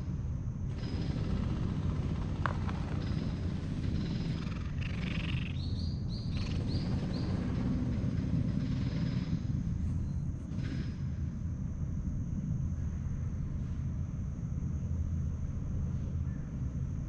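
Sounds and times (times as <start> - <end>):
bird chirping: 2.7 - 7.6.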